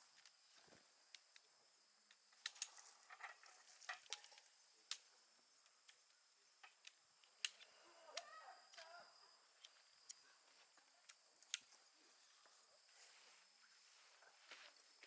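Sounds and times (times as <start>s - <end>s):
faint clicks and light taps: 0.1s - 8.9s, 9.5s - 12.6s.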